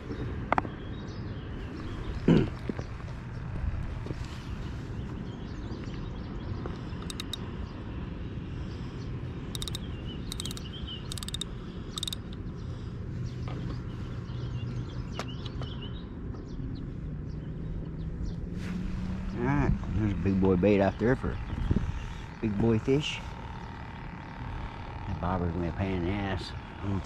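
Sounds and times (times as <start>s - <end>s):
steady low outdoor rush: 0.0s - 27.0s
small birds chirping: 4.2s - 7.9s, 8.6s - 18.4s, 19.3s - 27.0s.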